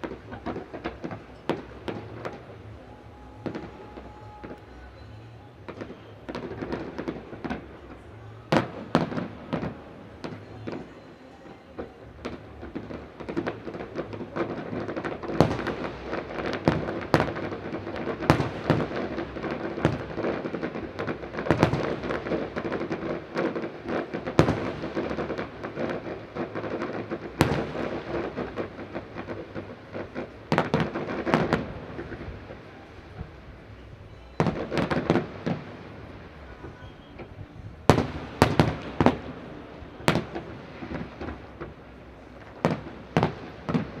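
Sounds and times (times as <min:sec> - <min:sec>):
fireworks crackling: 0:00.0 - 0:44.0
loud firework bangs: 0:12.2 - 0:44.0.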